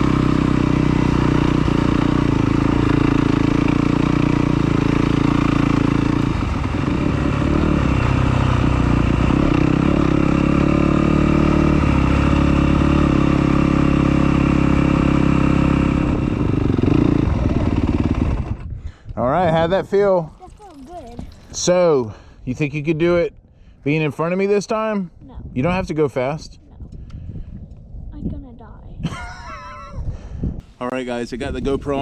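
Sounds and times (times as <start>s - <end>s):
two-stroke dirt bike engine: 0.0s - 18.8s.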